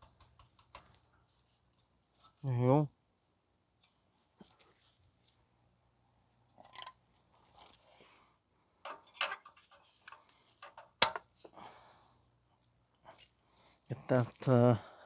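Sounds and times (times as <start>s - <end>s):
hand tools and metal hardware clattering: 8.8s - 11.3s.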